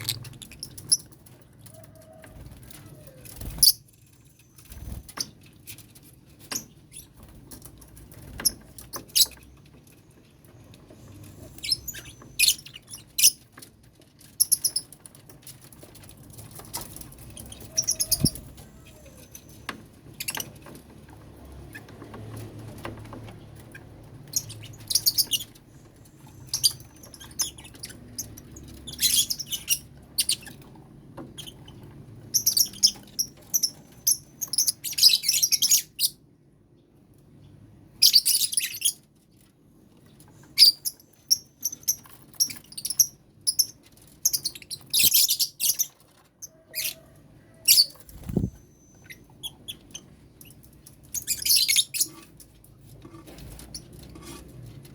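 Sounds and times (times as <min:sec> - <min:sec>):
lovebirds chirping and squawking: 0:00.0 - 0:54.8.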